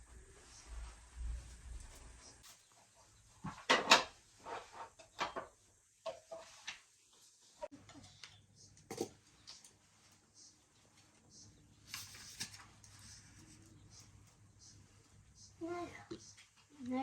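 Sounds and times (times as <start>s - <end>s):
kitchenware knocking and clattering: 3.5s - 4.2s, 4.9s - 6.6s, 8.9s - 9.2s.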